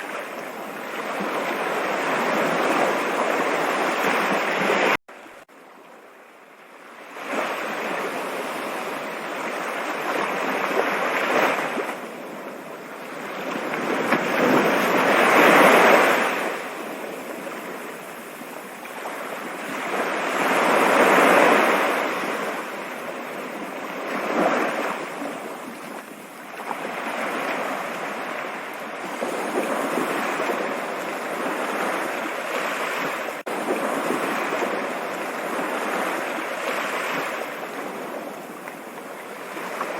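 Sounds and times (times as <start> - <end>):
running water rushing: 0.0 - 6.6.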